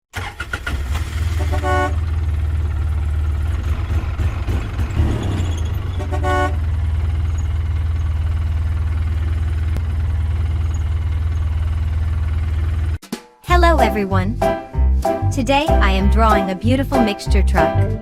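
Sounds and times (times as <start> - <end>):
truck engine rumbling: 0.2 - 18.0
truck horn toots: 1.2 - 2.1, 5.9 - 6.7.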